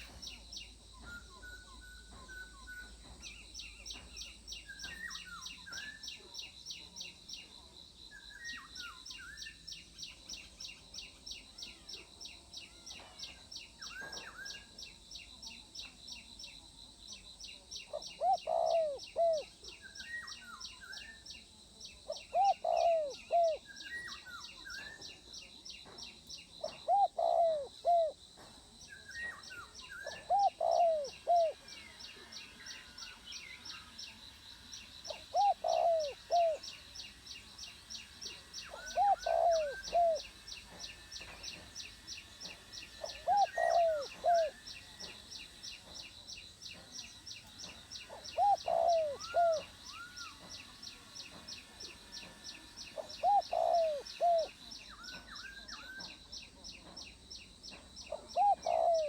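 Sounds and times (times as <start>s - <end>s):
dove cooing: 17.9s - 20.4s, 22.1s - 24.1s, 26.6s - 28.2s, 30.0s - 32.9s, 35.1s - 36.6s, 38.3s - 40.8s, 42.4s - 44.6s, 47.6s - 50.8s, 51.7s - 56.1s, 58.1s - 59.0s.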